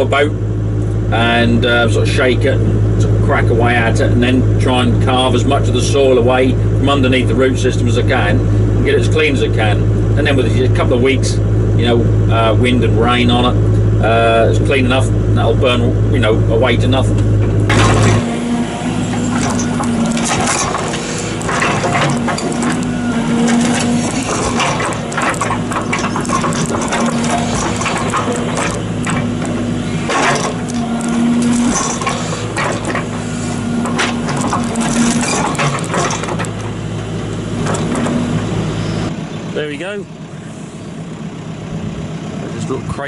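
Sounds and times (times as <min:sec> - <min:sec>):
excavator diesel engine running: 0:00.0 - 0:43.0
knocks and cracks of wood and earth: 0:17.2 - 0:38.6.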